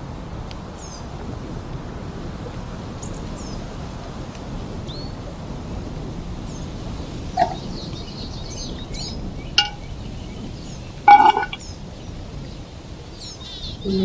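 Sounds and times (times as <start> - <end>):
stream water flowing: 7.4 - 7.8, 9.6 - 9.9, 11.1 - 11.6
small birds chirping: 7.4 - 11.8
light clink: 9.6 - 9.9.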